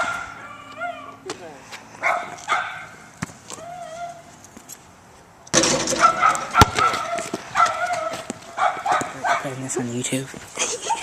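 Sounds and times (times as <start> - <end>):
outdoor noise: 0.0 - 11.0
basketball striking hard: 5.5 - 7.8.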